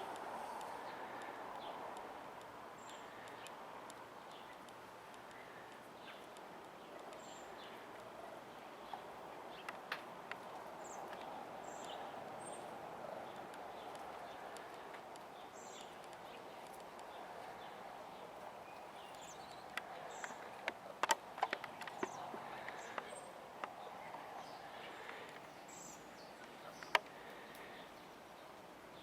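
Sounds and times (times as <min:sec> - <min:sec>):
sharp clicks and taps: 0:19.1 - 0:23.8.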